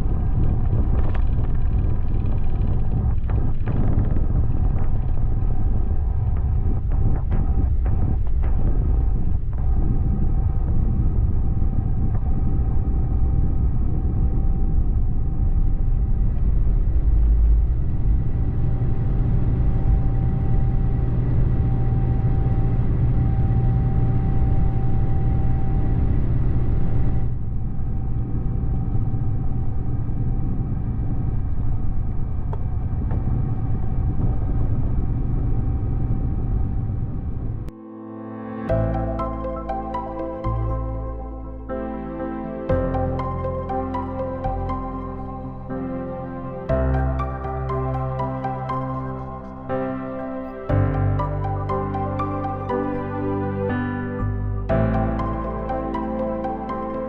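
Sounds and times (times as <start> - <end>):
low vehicle rumble: 0.0 - 37.8
faint steady tones: 0.0 - 57.0.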